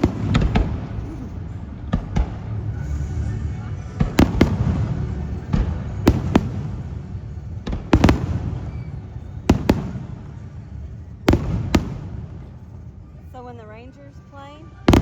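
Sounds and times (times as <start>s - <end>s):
low rumble of echoing blasts: 0.0s - 15.0s.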